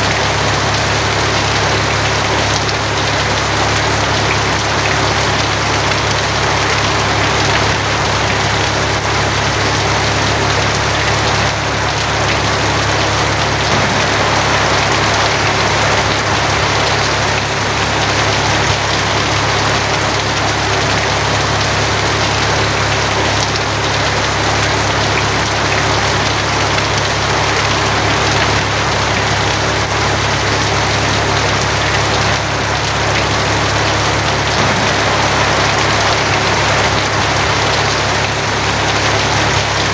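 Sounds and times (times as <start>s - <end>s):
heavy rain on a tin roof: 0.0s - 39.9s
low hum: 11.9s - 18.0s, 32.8s - 39.4s.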